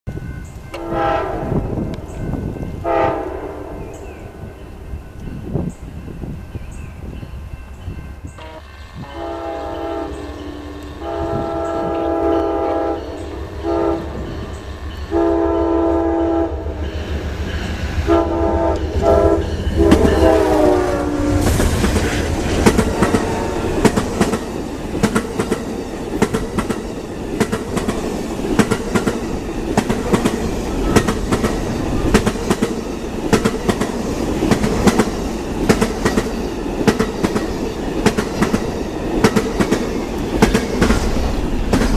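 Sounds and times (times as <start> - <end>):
locomotive horn blasts: 0.7 - 2.0, 2.8 - 4.4, 8.4 - 14.5, 15.1 - 16.8, 18.0 - 24.0
train wheels clickety-clack: 16.7 - 41.9.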